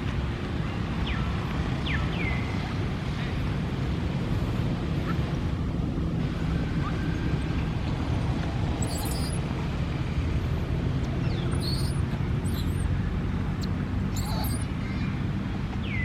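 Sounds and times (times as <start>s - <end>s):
low outdoor rumble: 0.0s - 16.0s
high chirps or squeaks: 8.8s - 9.5s, 11.3s - 12.9s, 13.6s - 14.8s.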